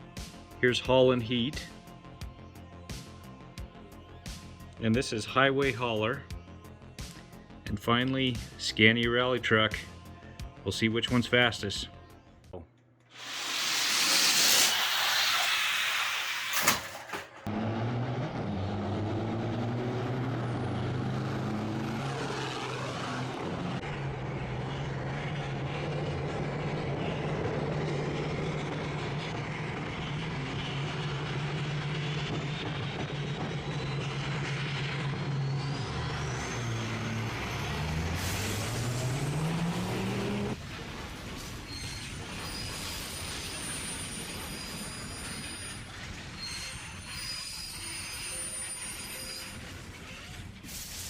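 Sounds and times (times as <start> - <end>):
air brake hiss: 13.2 - 17.4, 50.6 - 51.0
truck engine revving: 13.2 - 40.6.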